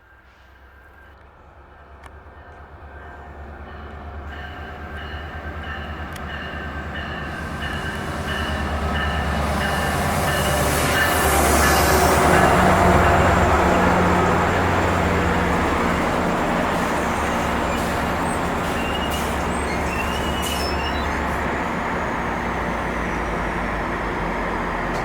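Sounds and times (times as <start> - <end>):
diesel train rumble: 0.0 - 25.0
wheels squealing: 16.7 - 23.2.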